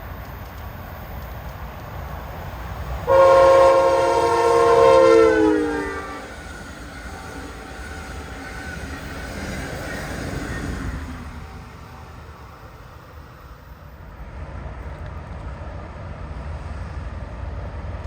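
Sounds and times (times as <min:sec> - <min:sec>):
low train rumble: 0:00.0 - 0:18.0
train horn blast: 0:03.1 - 0:06.4.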